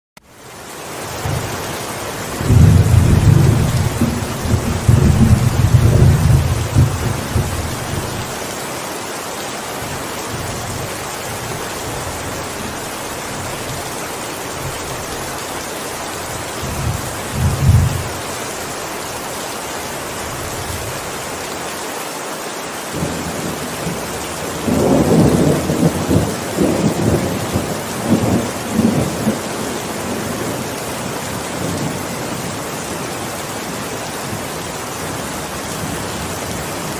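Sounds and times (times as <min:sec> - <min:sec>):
heavy rain: 0:00.2 - 0:36.9
thunder rumbling: 0:02.3 - 0:08.3, 0:16.6 - 0:18.2, 0:23.0 - 0:30.7.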